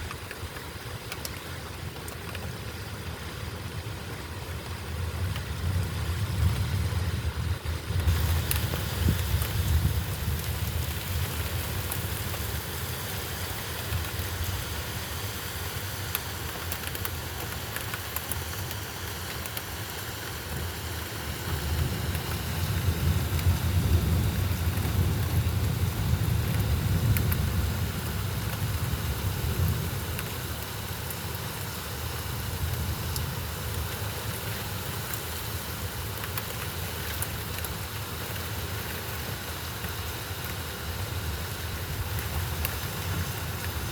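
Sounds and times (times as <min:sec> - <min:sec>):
rain falling: 0:00.0 - 0:43.9.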